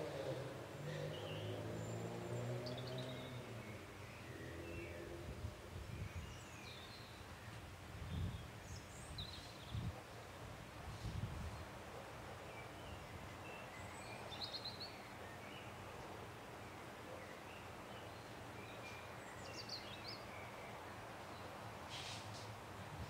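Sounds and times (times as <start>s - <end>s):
outdoor background hiss: 0.0s - 23.0s
small birds chirping: 12.6s - 22.5s.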